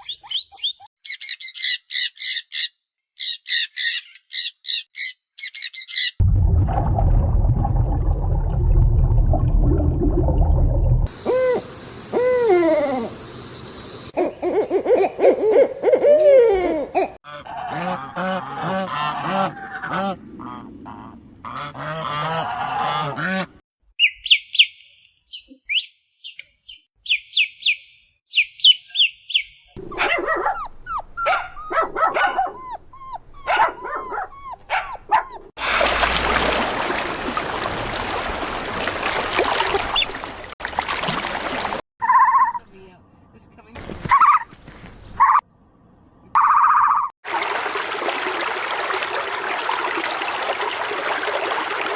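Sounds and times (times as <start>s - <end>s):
animal and bird calls: 0.0s - 6.2s, 11.2s - 35.5s, 46.4s - 47.1s.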